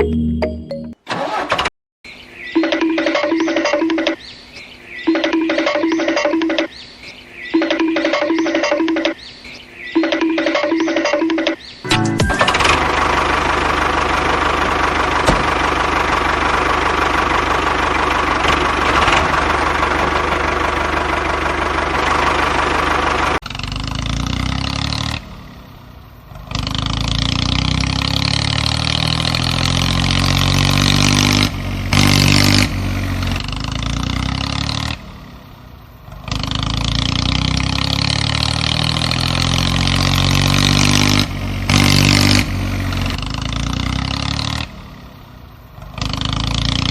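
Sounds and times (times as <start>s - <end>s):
engine revving: 12.3s - 46.9s.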